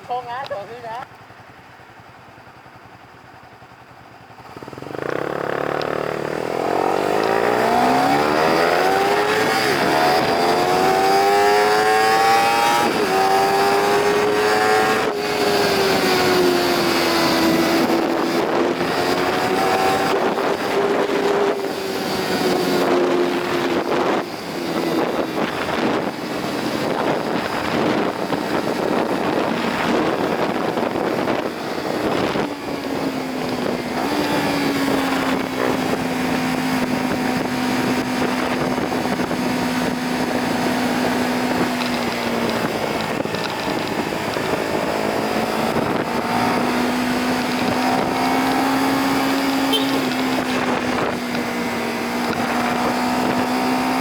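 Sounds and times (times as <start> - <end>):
motorcycle engine running: 0.0 - 54.0
wind buffeting microphone: 4.6 - 54.0.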